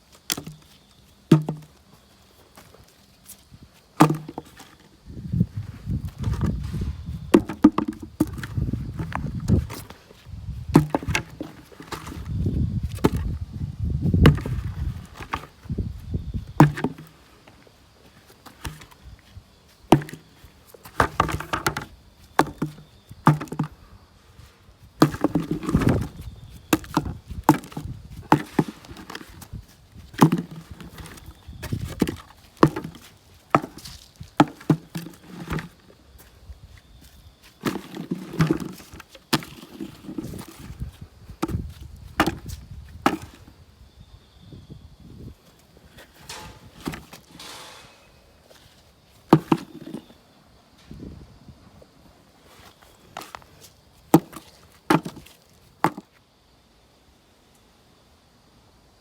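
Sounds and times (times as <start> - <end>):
wooden knocks and cracks: 1.3 - 1.8, 4.0 - 4.9, 5.9 - 10.0, 10.6 - 13.4, 14.1 - 17.2, 19.9 - 23.8, 25.0 - 35.9, 37.0 - 43.5, 46.0 - 48.0, 49.2 - 50.1, 54.1 - 56.1
dull low thud: 12.1 - 17.0.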